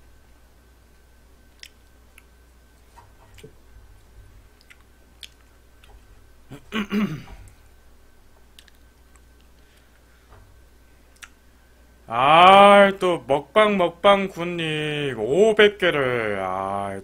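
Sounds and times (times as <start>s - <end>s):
chewing food: 1.5s - 2.4s, 4.5s - 6.0s, 8.5s - 9.9s, 11.1s - 11.4s
wet smacking: 4.6s - 6.0s, 11.1s - 11.4s.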